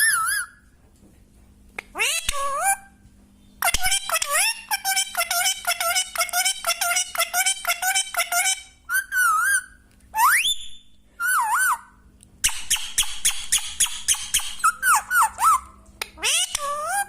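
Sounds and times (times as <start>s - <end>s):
parrot whistling: 0.0s - 0.6s, 6.6s - 17.0s
parrot clicking chatter: 12.4s - 17.0s.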